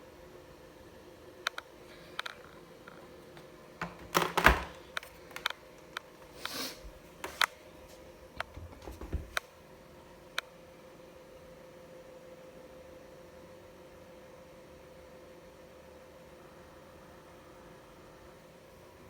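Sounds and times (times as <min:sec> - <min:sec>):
faint steady hum: 0:00.0 - 0:19.0
short hiss: 0:06.4 - 0:06.8.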